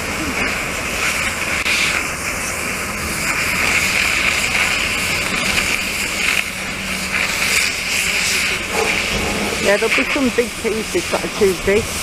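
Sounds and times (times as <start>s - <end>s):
demolition machinery running: 0.0s - 12.0s.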